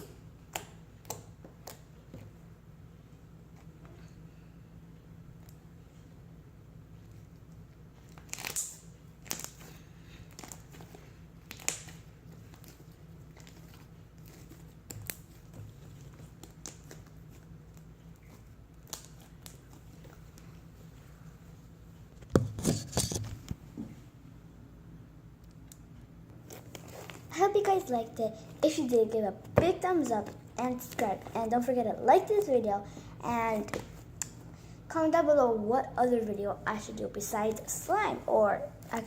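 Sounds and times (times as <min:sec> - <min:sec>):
slime sticky crackles and pops: 0:08.1 - 0:09.6, 0:11.4 - 0:12.8.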